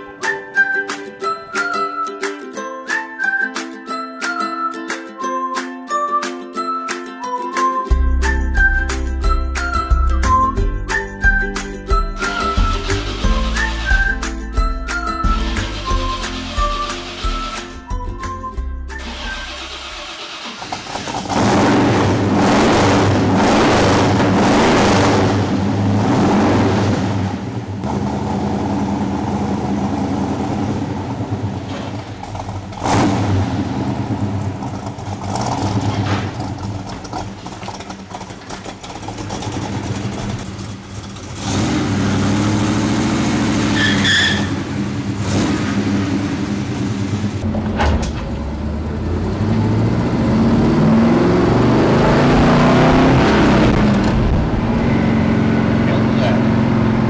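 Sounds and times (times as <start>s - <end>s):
car engine revving: 15.2s - 17.8s, 19.0s - 57.0s.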